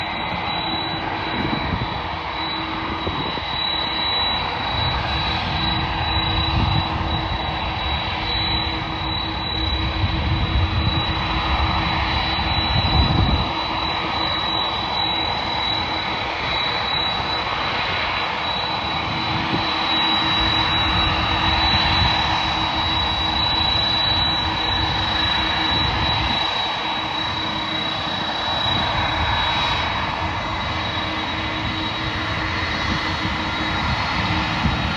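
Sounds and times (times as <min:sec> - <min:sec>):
jet engines roaring with whine: 0:00.0 - 0:34.9.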